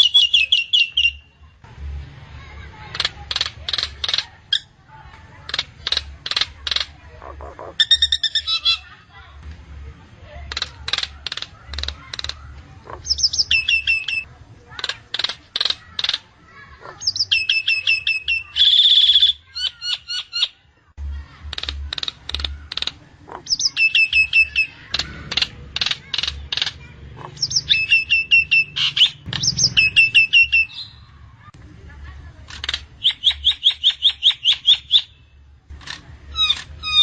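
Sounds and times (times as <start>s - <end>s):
myna calling: 2.8s - 9.0s, 10.4s - 20.6s, 21.4s - 31.5s.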